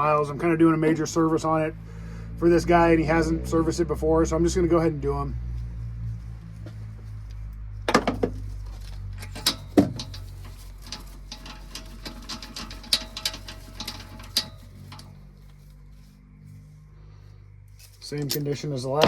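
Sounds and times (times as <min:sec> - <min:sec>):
ratchet clicking: 0:09.2 - 0:15.2.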